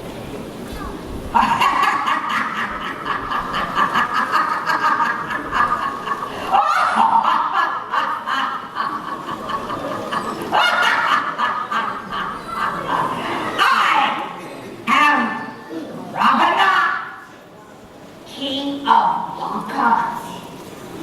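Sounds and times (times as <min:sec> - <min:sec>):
high-pitched cackling laugh: 0:01.4 - 0:13.8.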